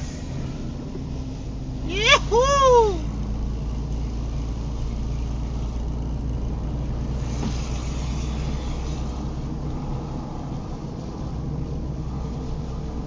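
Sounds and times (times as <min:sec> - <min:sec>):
car engine and tyre rumble: 0:00.0 - 0:13.0
hiss of water spray: 0:07.2 - 0:09.4.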